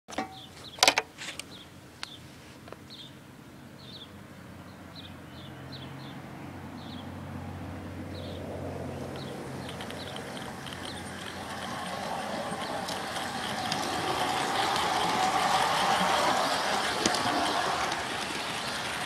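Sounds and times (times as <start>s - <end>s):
outdoor ambience: 0.1s - 19.0s
small bird chirping: 9.0s - 14.5s
low hum: 9.1s - 19.0s
sharp clicks: 9.2s - 19.0s.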